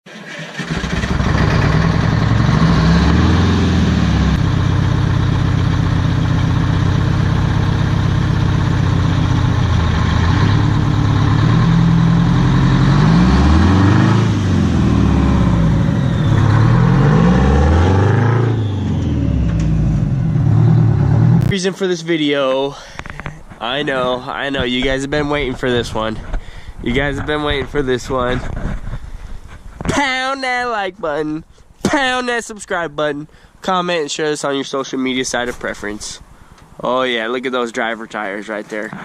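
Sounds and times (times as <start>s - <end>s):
diesel truck engine revving: 0.3s - 21.5s.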